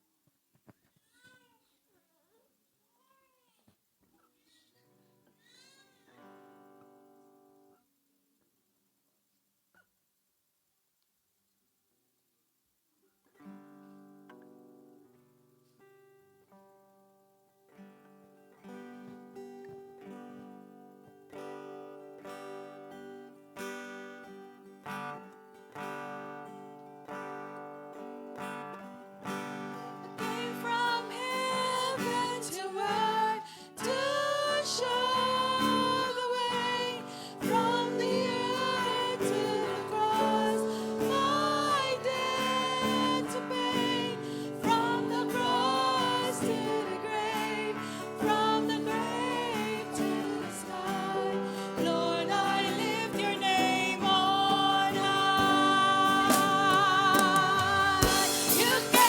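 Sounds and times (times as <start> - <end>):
guitar accompaniment: 13.4 - 59.0
woman singing slow melody: 30.2 - 59.0.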